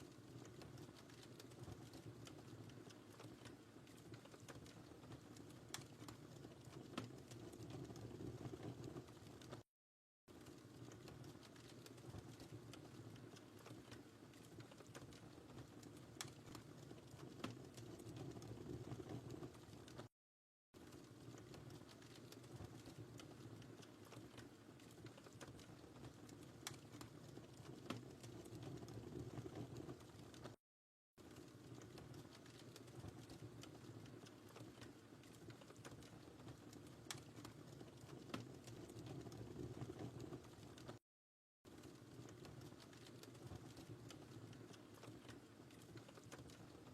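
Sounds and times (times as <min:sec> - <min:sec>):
fire crackling and popping: 0:00.0 - 0:09.7, 0:10.3 - 0:20.2, 0:20.8 - 0:30.6, 0:31.2 - 0:41.0, 0:41.7 - 0:46.9
fire flames rushing: 0:20.9 - 0:30.6, 0:31.3 - 0:41.0.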